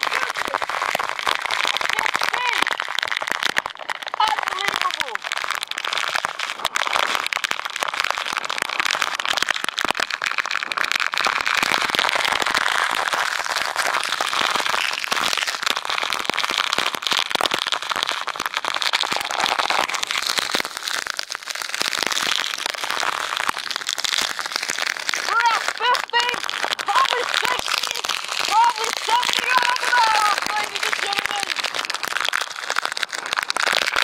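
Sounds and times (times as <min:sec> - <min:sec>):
driving rain hissing: 0:00.0 - 0:03.1, 0:04.1 - 0:06.6, 0:18.8 - 0:34.0
raindrops crackling near microphone: 0:00.0 - 0:34.0.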